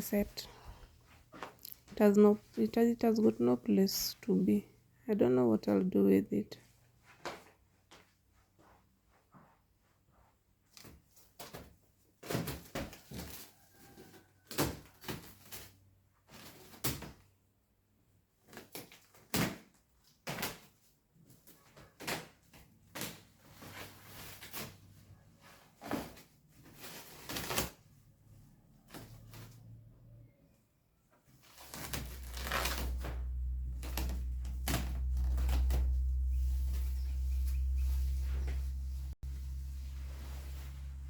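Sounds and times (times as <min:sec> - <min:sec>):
rustling: 0:31.4 - 0:41.0.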